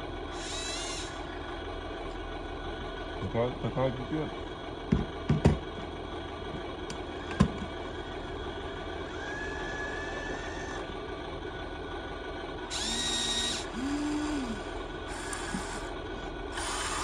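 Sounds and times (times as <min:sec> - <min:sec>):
small electric motors whining: 0:00.0 - 0:01.6, 0:07.0 - 0:11.1, 0:12.6 - 0:17.0.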